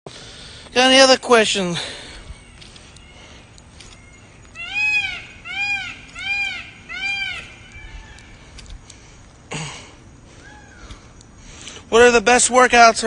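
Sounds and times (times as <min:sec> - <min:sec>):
animal calling: 0:02.4 - 0:08.4.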